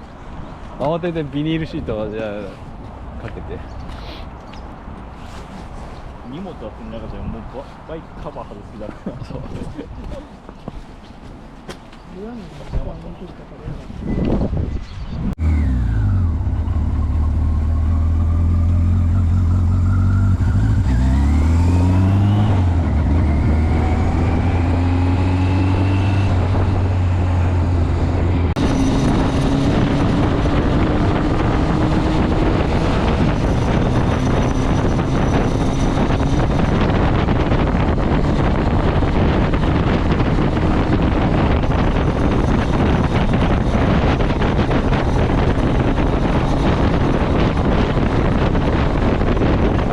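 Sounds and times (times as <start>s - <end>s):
wind and road noise: 0.0s - 49.9s
motorcycle engine accelerating: 15.1s - 49.9s.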